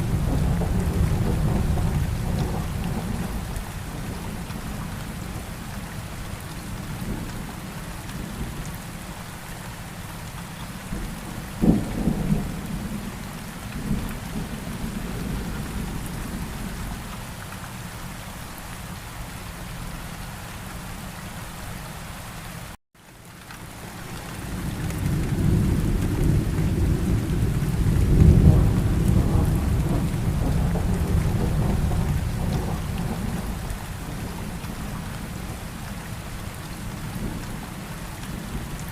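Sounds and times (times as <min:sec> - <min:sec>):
thunder rumbling: 0:00.0 - 0:05.2, 0:10.9 - 0:17.1, 0:24.5 - 0:35.8
steady rain: 0:00.0 - 0:38.9.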